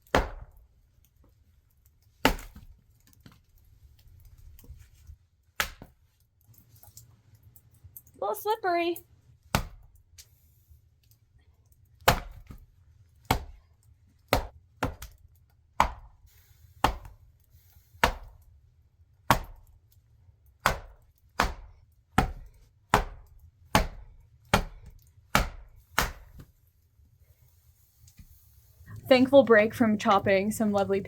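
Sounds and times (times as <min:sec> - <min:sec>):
axe chopping a log: 0:00.0 - 0:00.6, 0:02.2 - 0:02.7, 0:05.6 - 0:05.9, 0:09.5 - 0:09.9, 0:12.0 - 0:12.6, 0:13.2 - 0:13.6, 0:14.3 - 0:15.2, 0:15.8 - 0:16.2, 0:16.8 - 0:17.2, 0:18.0 - 0:18.4, 0:19.3 - 0:19.7, 0:20.6 - 0:26.5.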